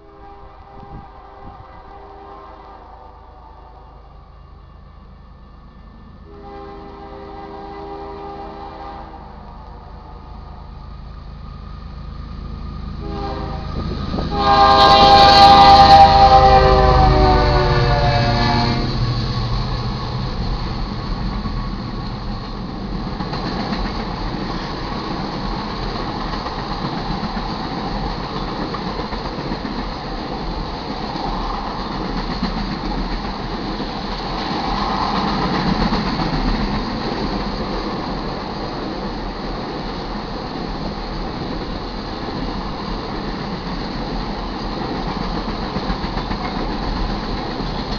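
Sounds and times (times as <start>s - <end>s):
locomotive air horn: 0.0s - 4.1s, 6.2s - 10.7s, 13.0s - 19.0s
train cars rumbling on rails: 0.0s - 47.9s.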